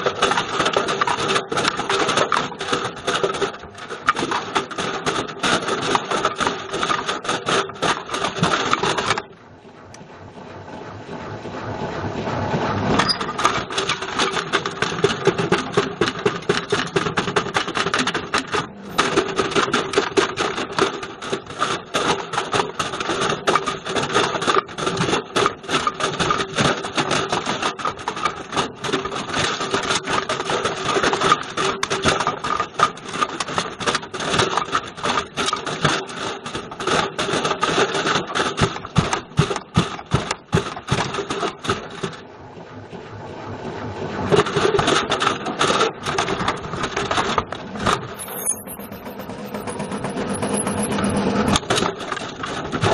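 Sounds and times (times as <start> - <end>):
clattering and knocking in drum: 0.0 - 9.3, 13.0 - 42.2
washing machine running hum: 0.0 - 52.9.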